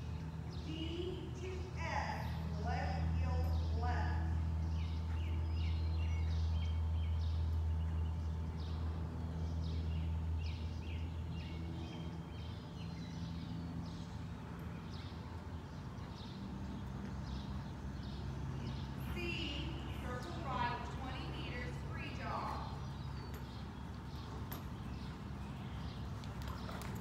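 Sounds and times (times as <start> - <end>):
low background hum: 0.0 - 27.0
small birds chirping: 0.0 - 27.0.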